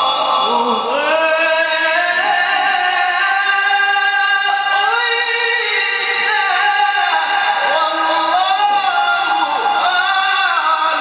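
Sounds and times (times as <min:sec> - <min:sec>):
person chanting melodically: 0:00.0 - 0:11.0.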